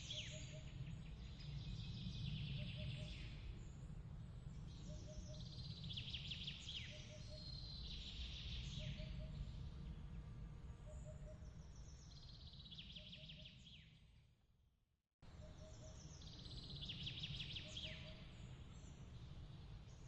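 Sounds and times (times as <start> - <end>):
steady low rumble: 7.6 - 12.0
bird chirps and trills: 15.4 - 20.0.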